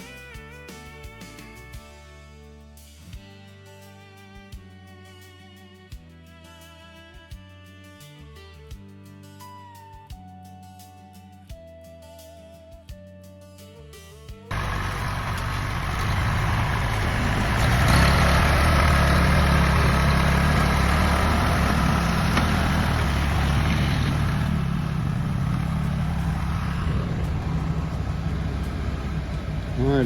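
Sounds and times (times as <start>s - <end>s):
truck engine rumble: 14.5s - 30.0s.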